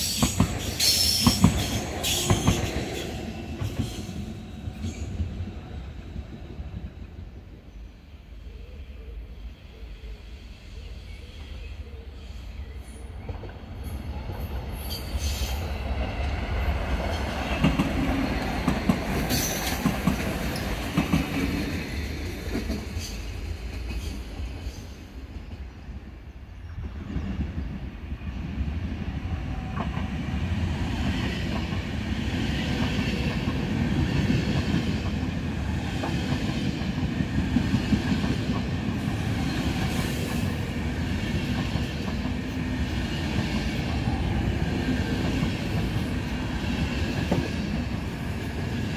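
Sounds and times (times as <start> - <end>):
train wheels clicking over rail joints: 0.0 - 4.2, 17.0 - 25.6, 45.1 - 48.6
train wheel squeal: 0.0 - 7.1, 8.5 - 16.1, 17.0 - 21.7
electric train passing: 0.0 - 48.9.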